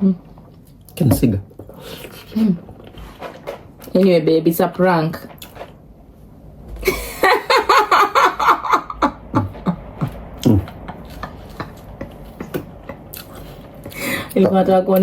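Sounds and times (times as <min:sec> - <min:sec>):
person laughing: 0:06.8 - 0:13.1.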